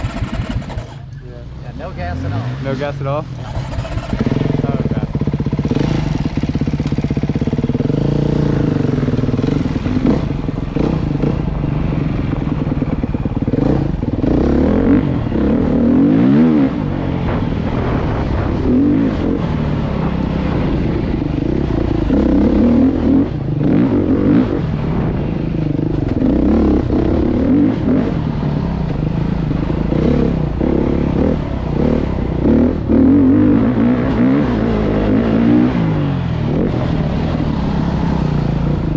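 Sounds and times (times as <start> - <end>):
dirt bike engine revving: 0.0 - 38.9
knocks and clatter: 17.1 - 22.0.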